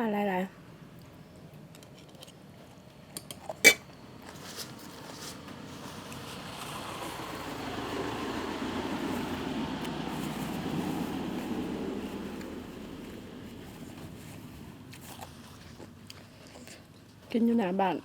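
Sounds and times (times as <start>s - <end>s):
dishes and utensils clinking: 3.5s - 3.9s.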